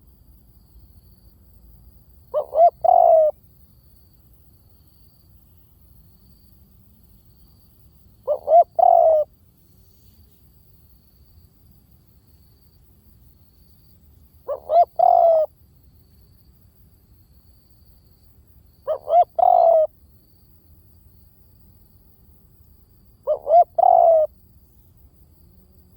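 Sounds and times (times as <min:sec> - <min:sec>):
dove cooing: 0:02.3 - 0:03.4, 0:08.2 - 0:09.3, 0:14.4 - 0:15.5, 0:18.8 - 0:19.9, 0:23.2 - 0:24.3.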